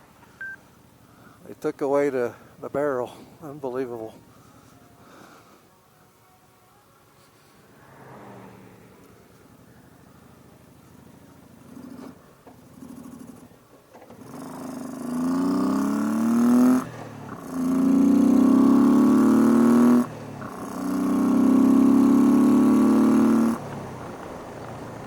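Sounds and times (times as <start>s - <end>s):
motorcycle engine accelerating: 7.8s - 25.0s.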